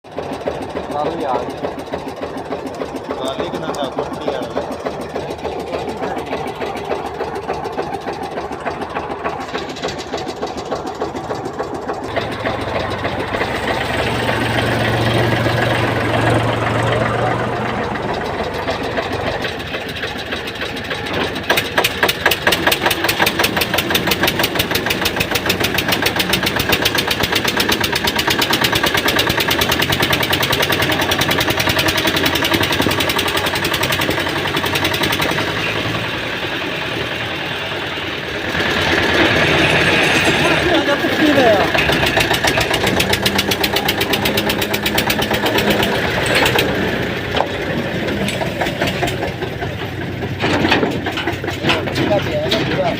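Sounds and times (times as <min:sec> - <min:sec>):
tractor diesel engine chugging: 0:00.0 - 0:52.9.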